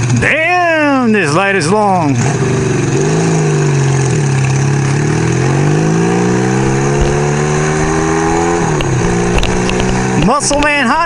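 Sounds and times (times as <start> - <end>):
motorcycle engine accelerating: 0.0 - 10.9
wind rushing: 5.4 - 10.2.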